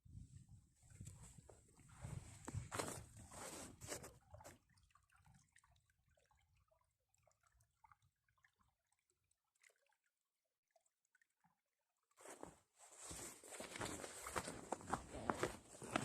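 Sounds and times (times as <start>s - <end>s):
faint drips and ticks: 4.0s - 12.8s
footsteps crunching in snow: 12.2s - 16.0s.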